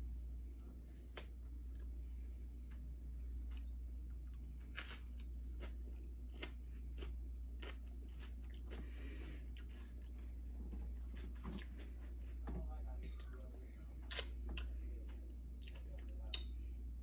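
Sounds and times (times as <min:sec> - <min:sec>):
steady low hum: 0:00.0 - 0:17.0
crunching and chewing chips: 0:00.6 - 0:12.4.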